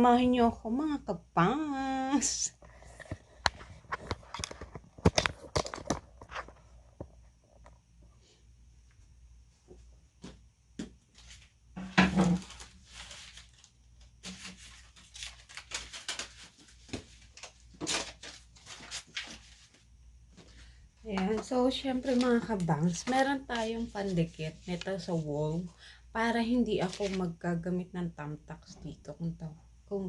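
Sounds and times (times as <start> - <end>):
packaging rustling: 12.2 - 19.8, 21.9 - 25.1, 26.8 - 27.2.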